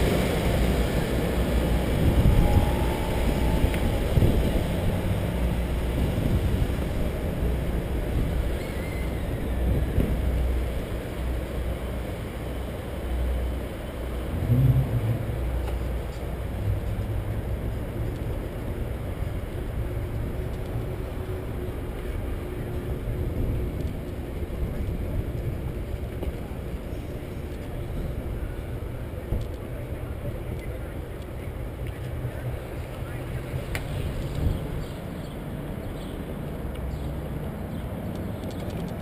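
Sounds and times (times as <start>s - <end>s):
wind on microphone: 0.0s - 11.4s, 32.1s - 35.8s
bicycle riding rumble: 0.0s - 39.0s.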